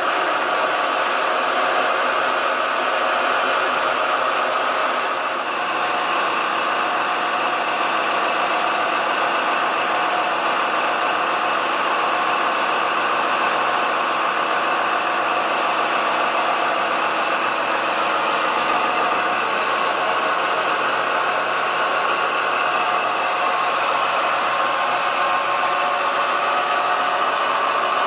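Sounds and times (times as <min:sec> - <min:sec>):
model machine mechanical whir: 0:16.0 - 0:20.1.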